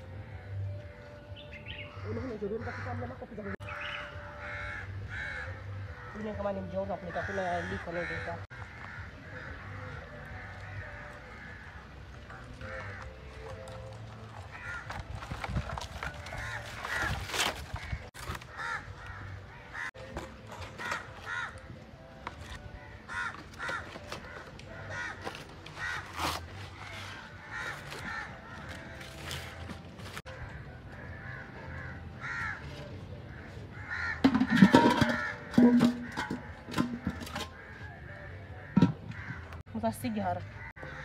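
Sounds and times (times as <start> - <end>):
birds calling: 0.0 - 41.0
dry palm fronds rustling: 10.7 - 37.7.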